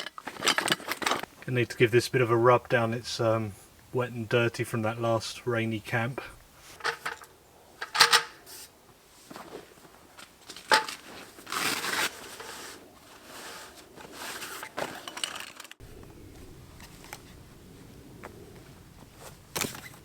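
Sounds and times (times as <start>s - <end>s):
rustling and scraping of gear: 0.0s - 1.6s, 6.6s - 20.0s.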